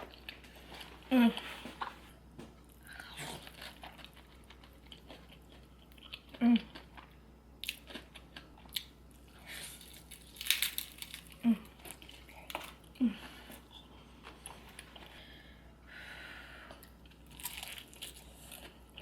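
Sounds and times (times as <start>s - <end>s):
crackly crunches: 3.4s - 13.6s, 16.8s - 19.0s.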